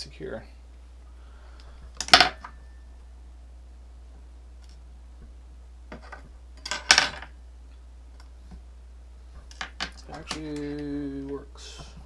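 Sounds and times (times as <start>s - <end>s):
steady low hum: 0.0s - 12.0s
hard plastic parts clicking: 9.4s - 11.9s.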